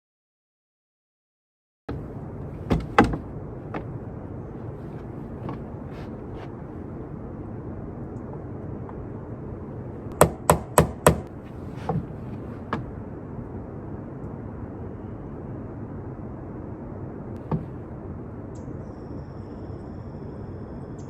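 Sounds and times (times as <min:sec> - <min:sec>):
sharp knocks: 0:01.9 - 0:04.0, 0:10.1 - 0:12.1
steady low rumble: 0:01.9 - 0:10.2.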